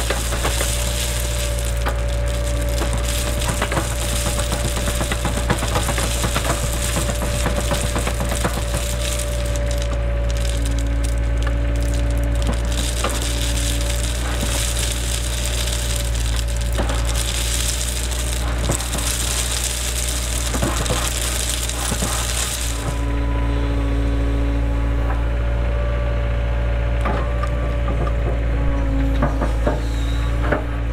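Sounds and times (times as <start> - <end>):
crackling noise: 0.0 - 25.6
excavator diesel engine running: 0.0 - 30.9.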